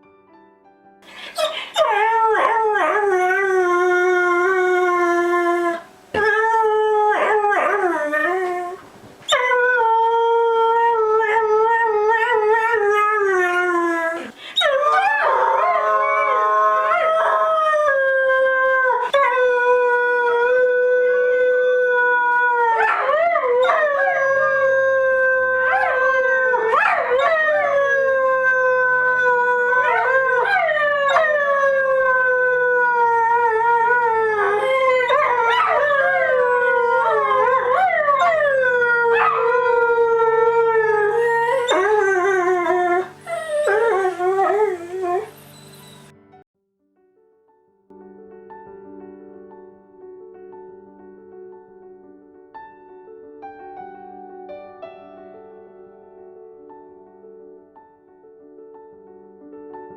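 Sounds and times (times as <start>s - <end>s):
dog howling: 1.4s - 45.4s.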